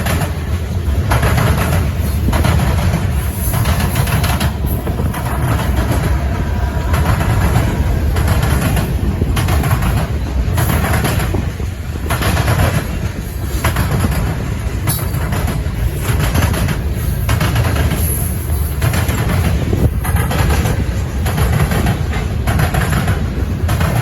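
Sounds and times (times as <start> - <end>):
freight train rumbling past: 0.0 - 24.0
wheels clacking over rail joints: 0.0 - 24.0.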